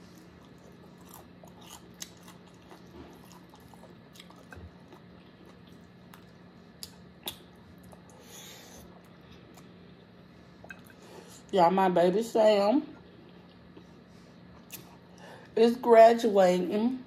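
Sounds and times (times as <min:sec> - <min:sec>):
faint steady hum: 0:00.0 - 0:17.0
chewing and mouth smacks: 0:00.1 - 0:08.2, 0:10.6 - 0:11.0, 0:14.5 - 0:15.1.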